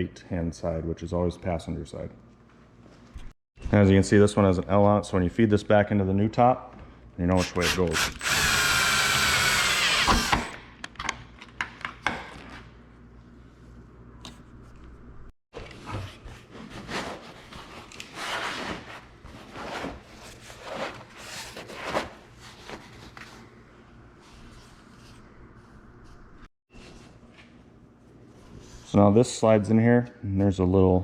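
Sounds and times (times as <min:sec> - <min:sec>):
power drill running: 0:07.4 - 0:10.6.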